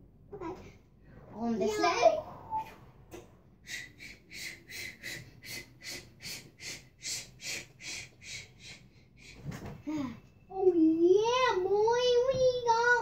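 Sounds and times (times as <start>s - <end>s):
rhythmic breathy puffs: 3.6s - 10.2s.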